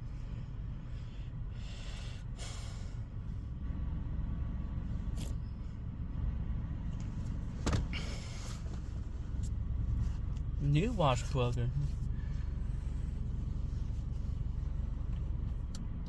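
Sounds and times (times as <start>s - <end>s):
car wash rumble: 6.8s - 15.7s.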